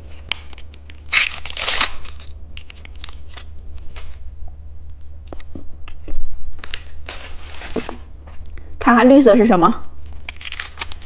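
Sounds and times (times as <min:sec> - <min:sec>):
snack packaging crinkling: 0:00.0 - 0:04.2, 0:06.6 - 0:08.0, 0:10.0 - 0:11.0
steady low hum: 0:00.0 - 0:11.0.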